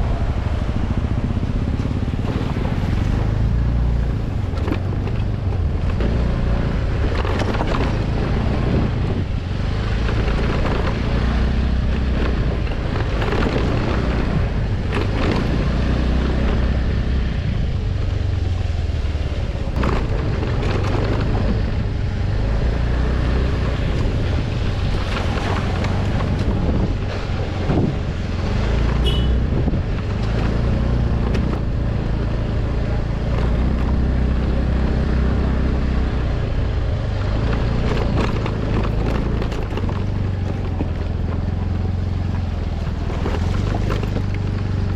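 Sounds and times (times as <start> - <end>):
vehicle engine rumbling: 0.0 - 44.9
wind noise on microphone: 0.0 - 44.9
knocks and rattles: 37.2 - 44.9.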